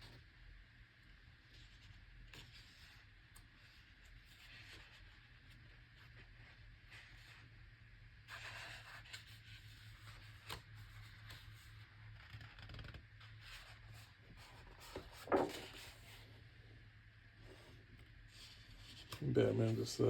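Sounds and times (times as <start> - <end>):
paper rustling: 8.3 - 16.3
book pages turning: 8.3 - 16.4
page landing thump: 15.2 - 15.7.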